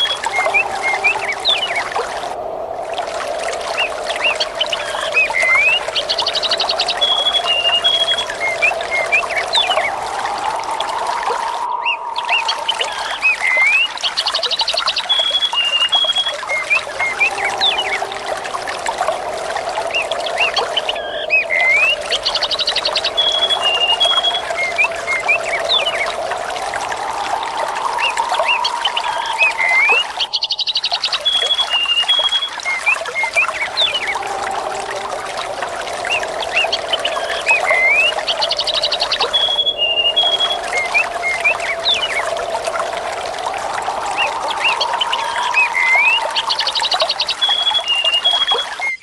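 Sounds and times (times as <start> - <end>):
water trickling and burbling: 0.0 - 49.0
small birds chirping: 27.0 - 34.4, 35.9 - 42.4, 43.7 - 49.0.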